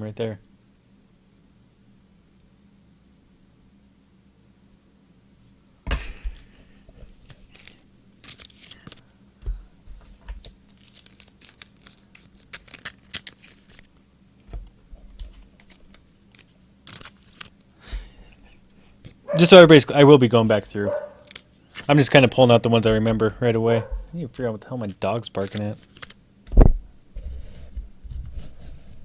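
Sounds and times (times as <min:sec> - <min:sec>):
paper and foil tearing and crinkling: 0:07.5 - 0:09.0, 0:10.7 - 0:13.9, 0:15.6 - 0:17.5, 0:20.4 - 0:22.3, 0:24.3 - 0:26.2
loud wrapper crackle: 0:10.7 - 0:13.9, 0:15.6 - 0:17.5, 0:21.2 - 0:21.5.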